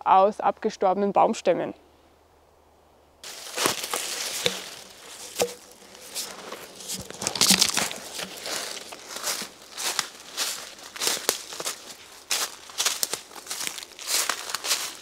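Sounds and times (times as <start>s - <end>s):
deadwood snapping: 3.2s - 14.8s
dry leaves rustling and crunching: 3.2s - 15.0s.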